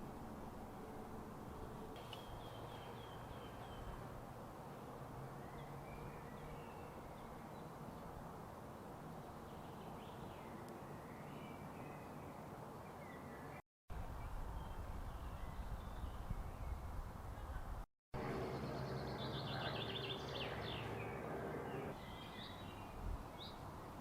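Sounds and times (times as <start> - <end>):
forest birds calling: 1.9 - 4.1, 18.2 - 24.0.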